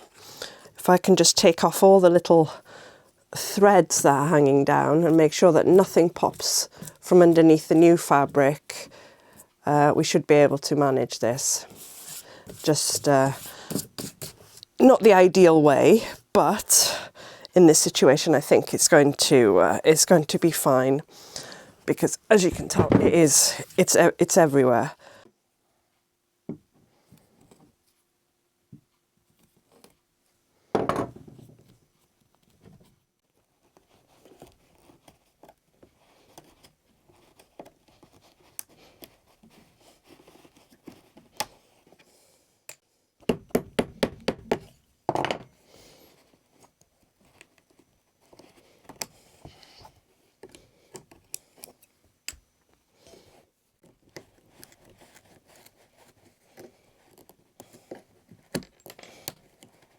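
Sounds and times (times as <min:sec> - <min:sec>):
thump: 0:30.8 - 0:31.3.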